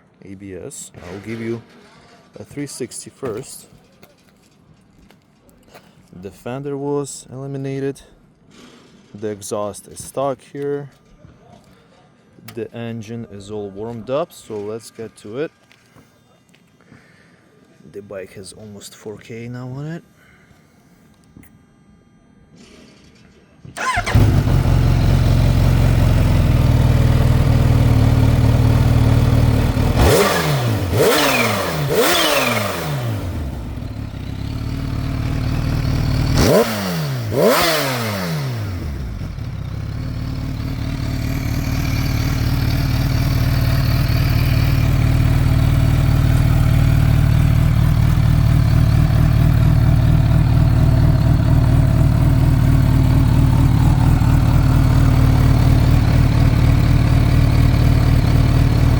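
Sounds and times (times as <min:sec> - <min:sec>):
motorcycle engine idling: 0:23.8 - 0:58.9
motorcycle engine revving: 0:23.8 - 0:58.9.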